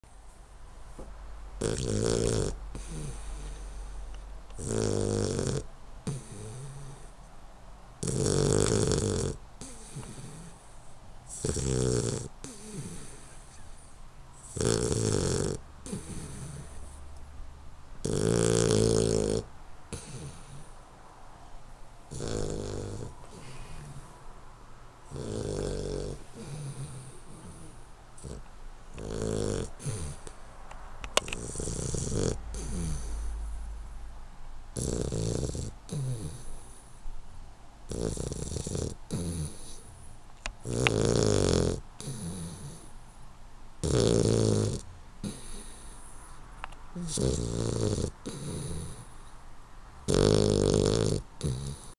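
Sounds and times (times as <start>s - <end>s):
puppy snoring: 1.6s - 7.2s, 8.0s - 17.0s, 18.0s - 20.8s, 22.1s - 24.2s, 25.0s - 30.4s, 31.0s - 33.6s, 34.7s - 37.0s, 37.9s - 43.0s, 43.8s - 49.4s, 50.0s - 51.9s
soft breaths: 2.5s - 4.6s, 9.6s - 11.5s, 12.3s - 14.6s, 15.8s - 17.4s, 19.4s - 22.1s, 23.1s - 29.0s, 29.7s - 34.3s, 35.9s - 37.4s, 45.2s - 47.3s, 48.1s - 49.7s.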